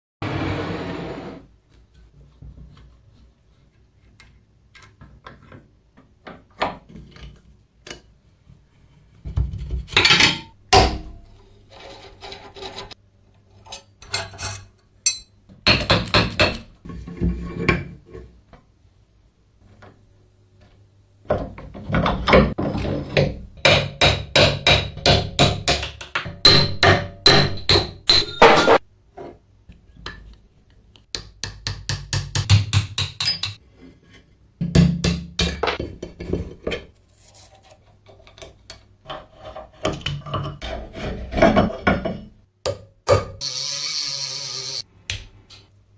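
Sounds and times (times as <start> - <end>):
knocks on metal: 15.7 - 16.6, 23.6 - 28.4.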